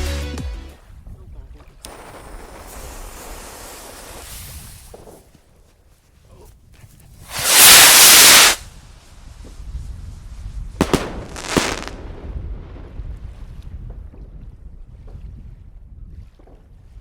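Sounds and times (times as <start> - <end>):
firework launching hiss: 1.9 - 5.0, 7.2 - 8.7, 10.8 - 12.2
firework cracks and crackling: 1.9 - 5.2, 7.2 - 8.7, 9.4 - 14.2.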